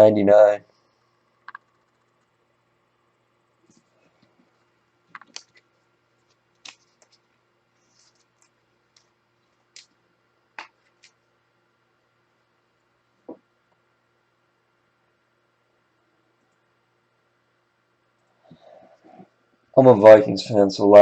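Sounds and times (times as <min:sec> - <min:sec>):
trading cards handled clicking: 0:06.6 - 0:07.2.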